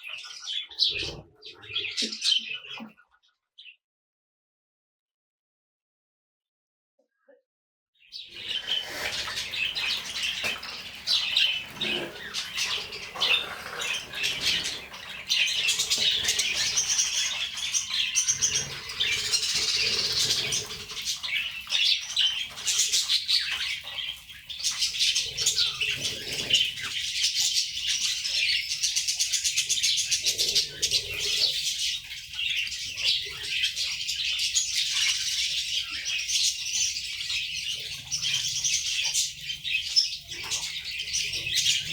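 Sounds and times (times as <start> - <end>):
small birds chirping: 0.0 - 3.8, 8.0 - 41.9
wings flapping: 8.4 - 21.0.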